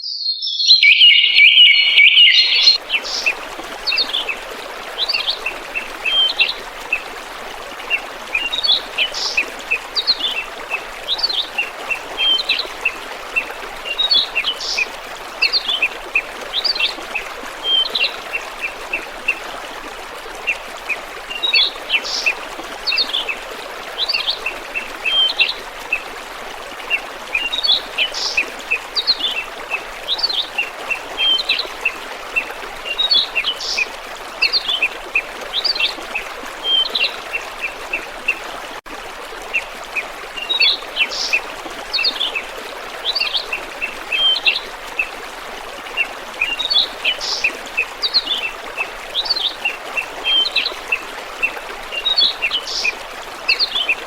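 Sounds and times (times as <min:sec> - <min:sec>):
small birds chirping: 0:00.0 - 0:03.3
running water rushing: 0:00.6 - 0:54.0.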